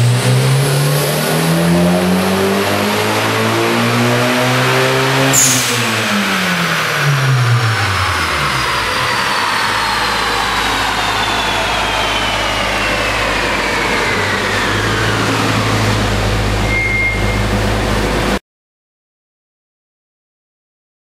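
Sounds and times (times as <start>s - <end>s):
low hum: 5.6s - 18.4s
drivetrain whine falling in pitch: 5.9s - 18.4s.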